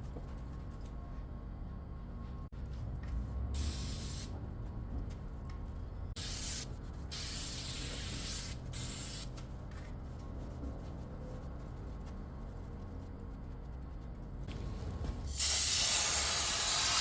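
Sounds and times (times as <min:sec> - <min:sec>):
steady low hum: 0:00.0 - 0:15.5
spray paint hissing: 0:03.6 - 0:04.3, 0:06.2 - 0:09.4, 0:15.3 - 0:17.0.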